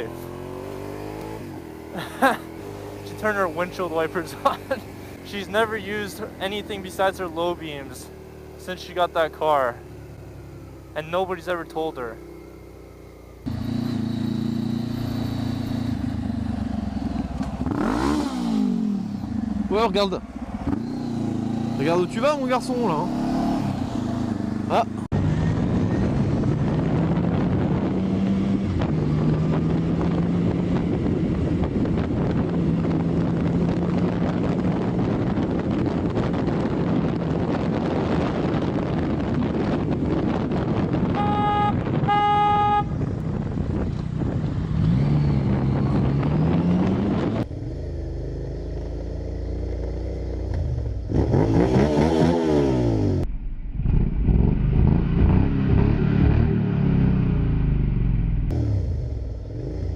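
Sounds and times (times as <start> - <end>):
motorcycle engine running: 0.0 - 59.9
wind noise: 22.7 - 48.7
horn sounding: 41.0 - 43.0.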